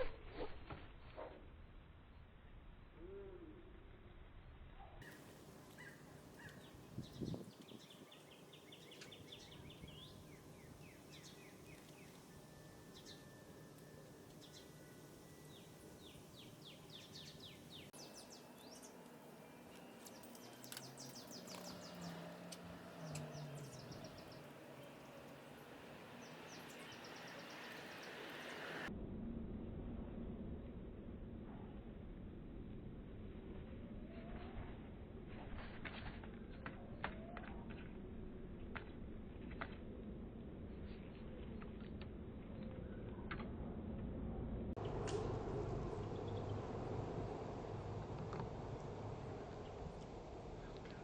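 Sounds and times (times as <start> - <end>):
small birds chirping: 5.0 - 13.4, 14.3 - 28.9
low drone: 8.2 - 35.7, 37.8 - 51.0.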